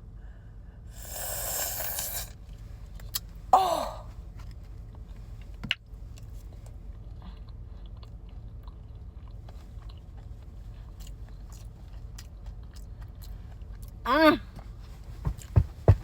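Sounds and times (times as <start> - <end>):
person saying oh: 3.6 - 4.1, 14.1 - 14.4
chewing cake: 6.2 - 14.0.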